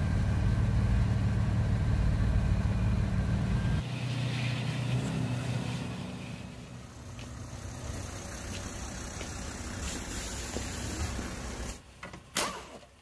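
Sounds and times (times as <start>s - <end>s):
car engine running: 6.8s - 11.8s.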